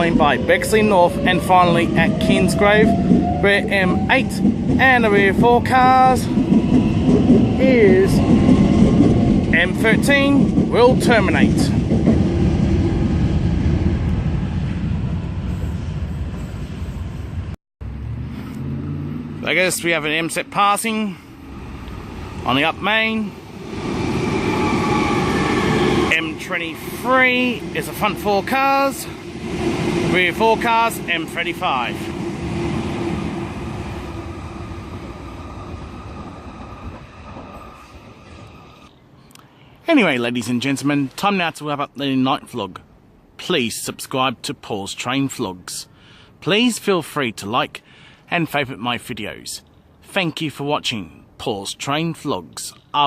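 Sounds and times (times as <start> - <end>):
electric train rumbling: 0.0 - 39.0.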